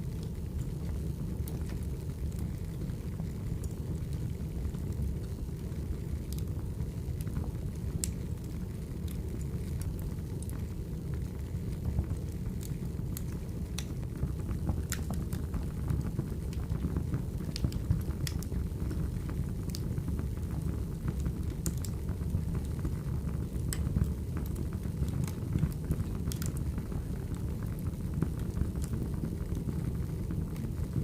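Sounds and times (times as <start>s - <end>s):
firewood crackles and pops: 0.0s - 31.0s
low rumble of flames: 0.0s - 31.0s.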